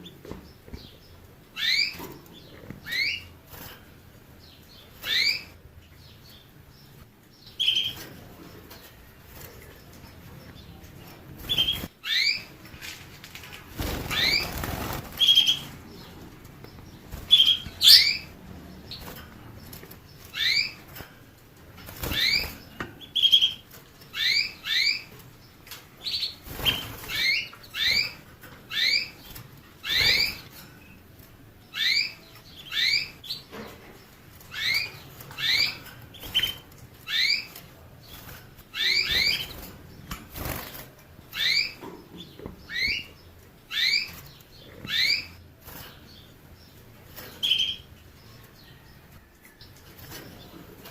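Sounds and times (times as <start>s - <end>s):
finch chirping: 0.0s - 3.7s, 4.4s - 12.5s, 13.8s - 21.0s, 21.8s - 31.0s, 31.6s - 48.7s
wing flutters: 12.8s - 15.7s.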